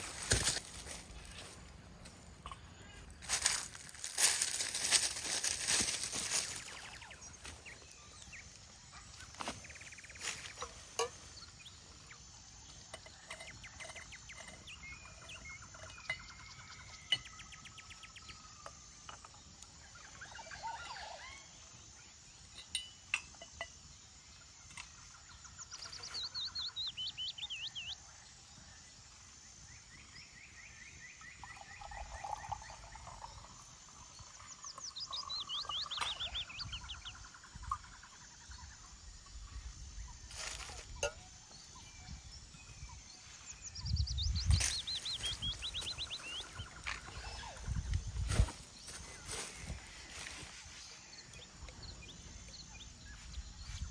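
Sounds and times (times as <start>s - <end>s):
small birds chirping and singing: 0.0s - 53.9s.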